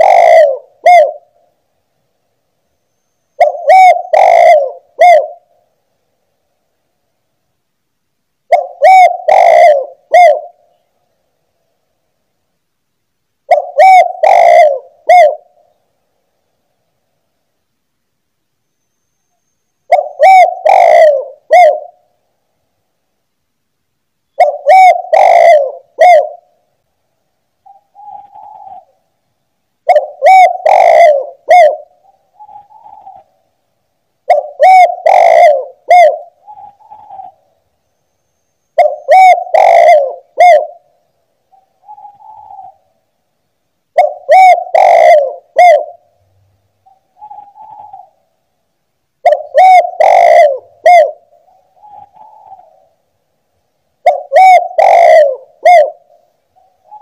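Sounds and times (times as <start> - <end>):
dove cooing: 0.0 - 1.6, 3.4 - 5.6, 8.5 - 10.8, 13.5 - 15.8, 19.9 - 22.1, 24.3 - 26.6, 27.6 - 29.0, 29.8 - 33.4, 34.2 - 37.6, 38.7 - 43.0, 43.9 - 46.2, 46.8 - 48.3, 49.2 - 53.0, 54.0 - 57.0.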